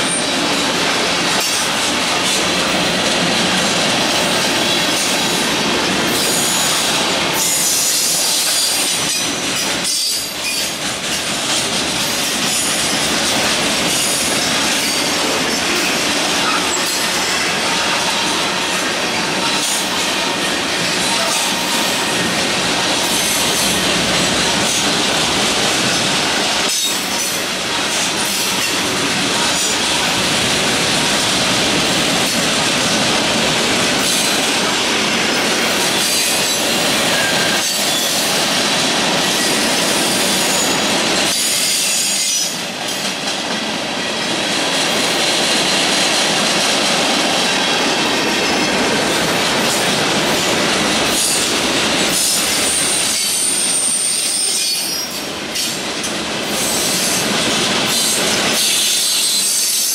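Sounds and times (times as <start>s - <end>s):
freight cars rumbling and rattling: 0.0s - 6.3s.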